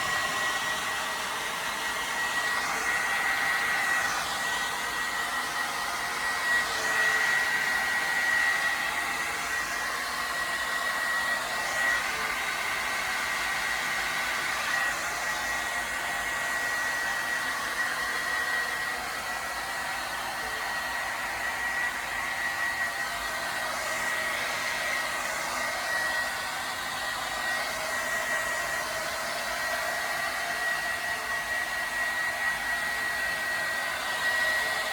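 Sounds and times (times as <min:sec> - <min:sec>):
hair dryer blowing: 0:00.0 - 0:34.9.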